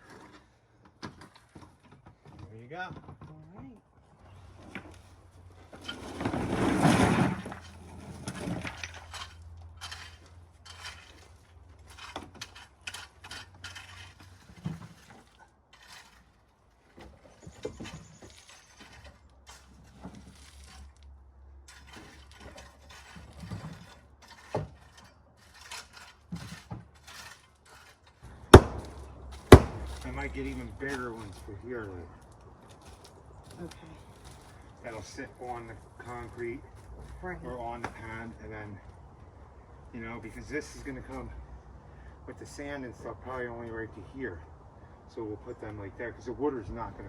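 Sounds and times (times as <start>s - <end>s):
stones tumbling: 4.4s - 38.6s.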